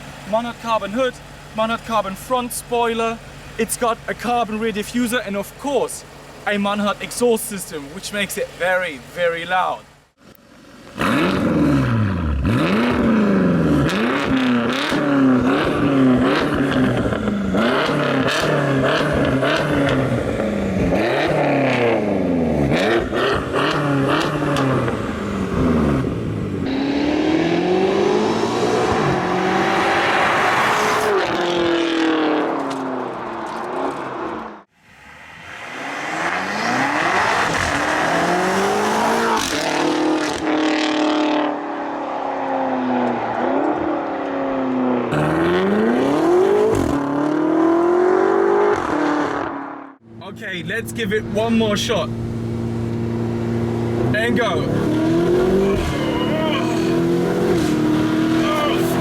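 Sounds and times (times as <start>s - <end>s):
loud car engine revving: 10.5s - 34.7s, 35.3s - 50.0s, 52.1s - 59.0s.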